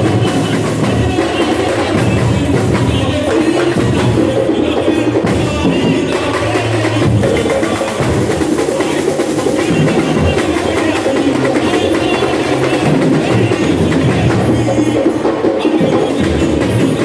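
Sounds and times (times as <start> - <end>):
snare and small percussion: 0.0 - 17.0.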